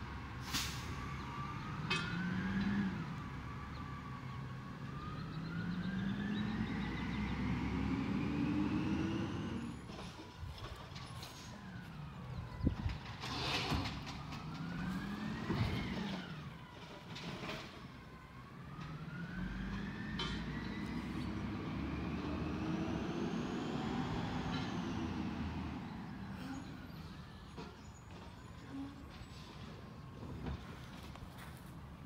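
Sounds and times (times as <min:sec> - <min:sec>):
truck engine revving: 0:05.0 - 0:09.8, 0:13.3 - 0:16.5, 0:18.8 - 0:26.4.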